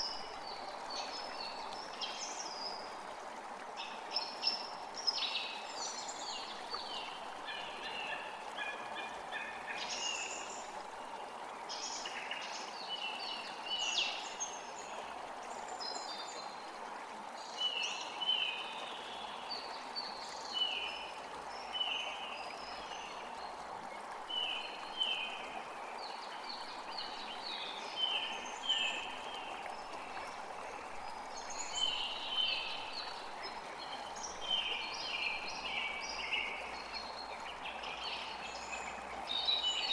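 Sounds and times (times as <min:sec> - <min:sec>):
songbirds singing and calling: 0:31.2 - 0:39.9.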